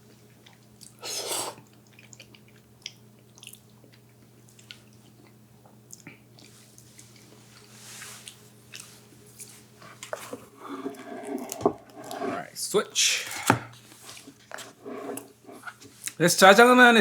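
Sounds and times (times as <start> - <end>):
wet clicks and chewing: 1.7 - 8.9.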